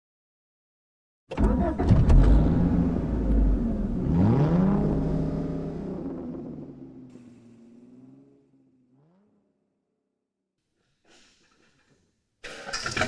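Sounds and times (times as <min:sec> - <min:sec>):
car engine running and revving: 0:01.4 - 0:09.5.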